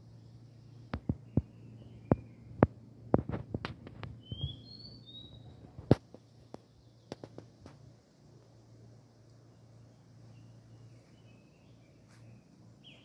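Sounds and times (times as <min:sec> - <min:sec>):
steady low hum: 0:00.0 - 0:13.0
bird whistling notes: 0:04.2 - 0:05.6.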